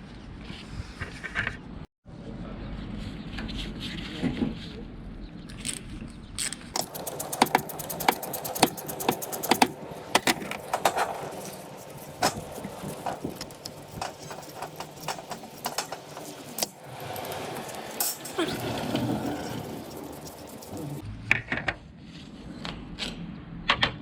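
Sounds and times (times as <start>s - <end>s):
ratchet wrench clicking: 6.8s - 18.4s
metallic clicks of hand tools: 6.8s - 21.0s.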